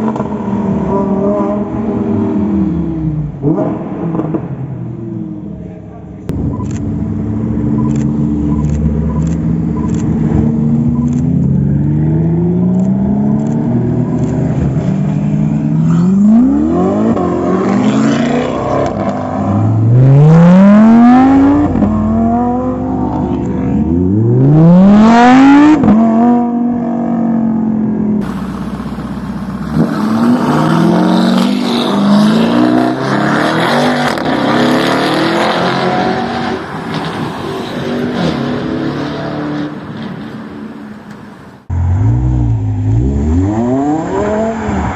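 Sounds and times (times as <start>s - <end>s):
car engine revving: 6.3s - 27.6s, 28.2s - 40.2s
car engine accelerating hard: 28.2s - 37.2s.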